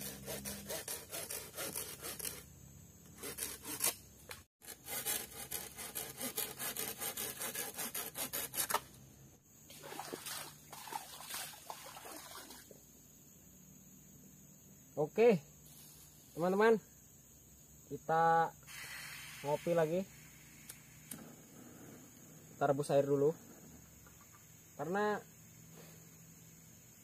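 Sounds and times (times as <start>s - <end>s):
hand saw sawing wood: 0.0s - 2.5s, 3.1s - 4.0s, 4.6s - 8.9s.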